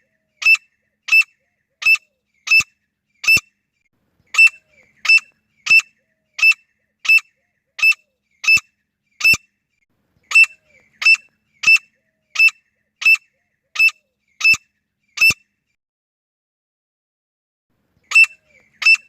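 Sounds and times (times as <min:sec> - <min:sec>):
francolin calling: 0:04.3 - 0:09.5, 0:10.2 - 0:15.4, 0:18.0 - 0:19.0.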